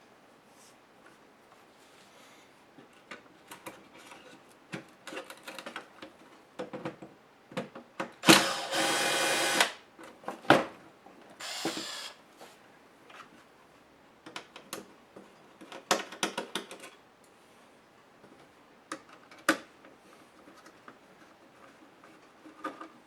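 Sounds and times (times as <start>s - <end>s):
handheld power tool motor: 8.2s - 9.8s, 11.4s - 12.2s.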